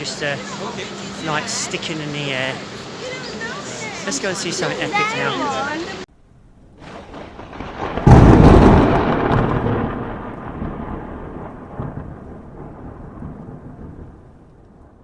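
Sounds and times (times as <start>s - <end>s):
loud rumbling boom: 6.2s - 15.0s.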